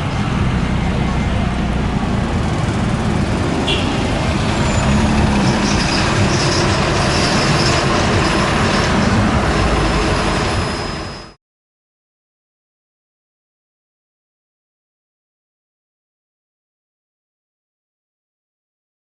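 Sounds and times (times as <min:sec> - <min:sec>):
heavy truck engine rumble: 0:00.0 - 0:11.4
road noise: 0:00.0 - 0:11.4.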